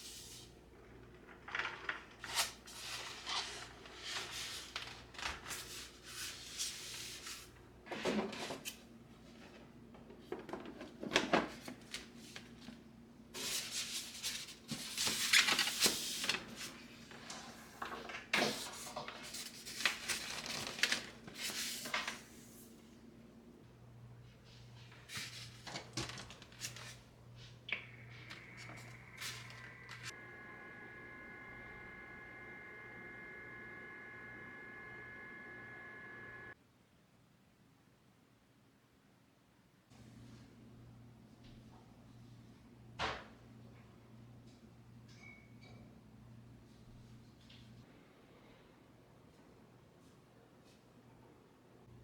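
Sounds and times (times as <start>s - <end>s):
faint low hum: 22.9s - 36.6s.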